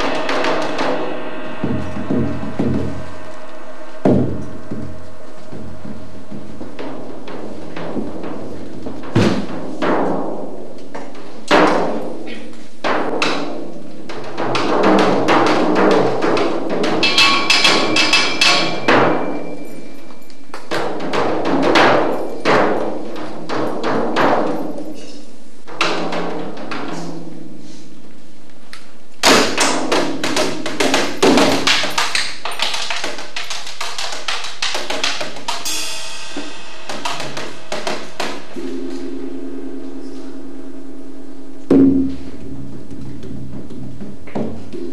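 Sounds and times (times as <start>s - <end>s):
metallic cymbal shimmer: 0.0s - 7.8s, 17.0s - 21.0s, 35.6s - 42.3s
drum strikes: 0.0s - 27.8s, 29.2s - 44.9s.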